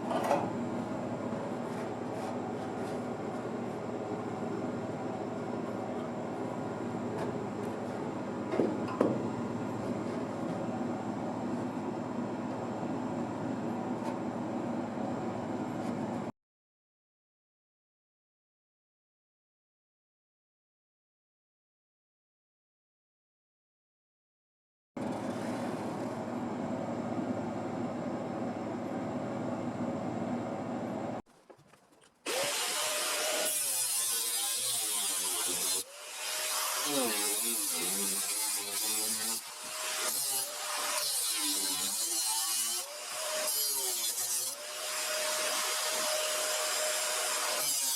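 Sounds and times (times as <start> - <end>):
hissy grinding tool: 32.3 - 47.9
power tool cutting sheet metal: 32.3 - 47.9.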